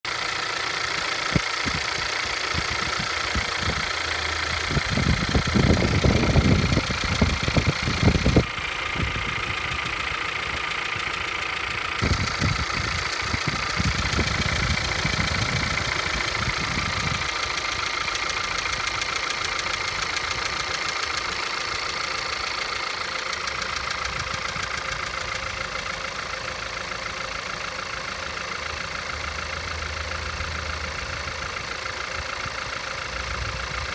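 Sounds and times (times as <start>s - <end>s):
petrol engine idling with knock: 0.1s - 33.9s
low rumbling: 1.2s - 20.7s.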